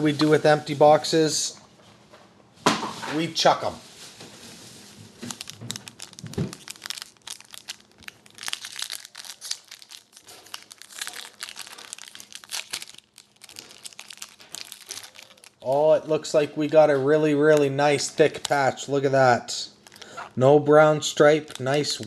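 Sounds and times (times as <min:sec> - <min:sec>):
wrapper crinkling and tearing: 0:03.9 - 0:17.0, 0:19.8 - 0:20.2, 0:21.2 - 0:22.0.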